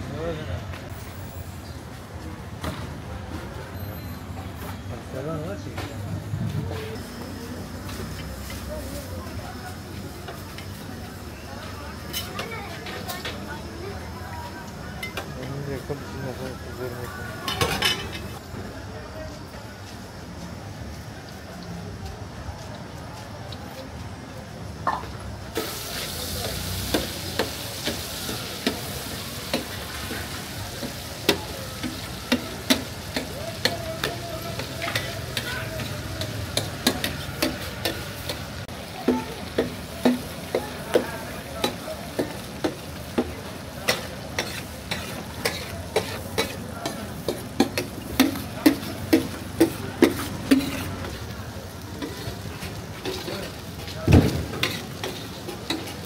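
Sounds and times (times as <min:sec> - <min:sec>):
liver sizzling on a griddle: 0:06.8 - 0:18.6, 0:24.6 - 0:56.0
metal spatula scraping griddle: 0:43.9 - 0:51.3, 0:52.0 - 0:53.6, 0:54.5 - 0:56.0.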